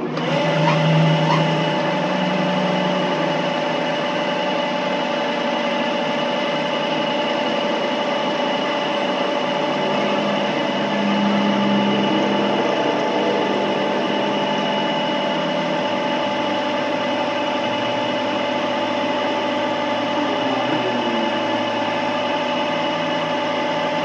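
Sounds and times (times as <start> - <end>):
machine whirring and humming: 0.0 - 24.0.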